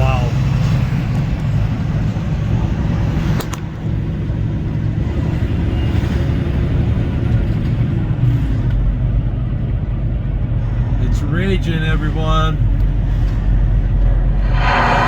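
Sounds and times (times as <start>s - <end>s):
truck engine and road noise: 0.0s - 15.0s.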